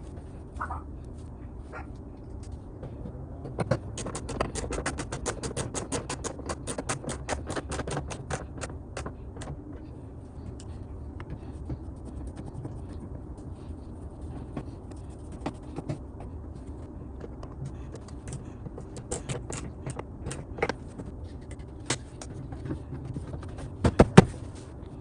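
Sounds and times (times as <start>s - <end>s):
steady low rumble: 0.0s - 25.0s
fast run of sharp clicks: 3.6s - 9.6s, 17.2s - 22.4s.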